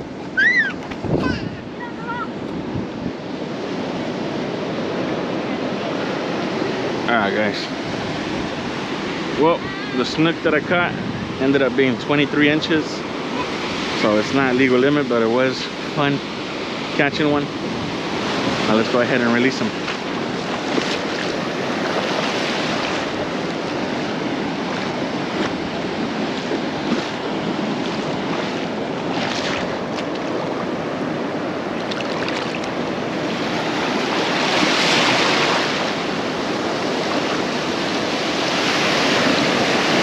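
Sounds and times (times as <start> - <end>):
wind on microphone: 0.0 - 7.1, 7.7 - 12.2, 16.4 - 40.0
ocean surf breaking on beach: 0.0 - 40.0.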